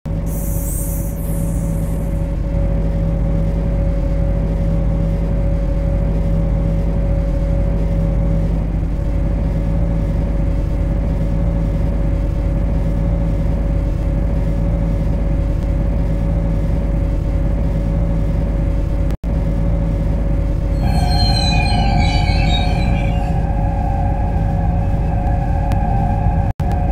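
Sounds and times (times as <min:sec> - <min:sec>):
electric train low rumble: 0:00.1 - 0:26.9
electrical hum: 0:20.5 - 0:26.9.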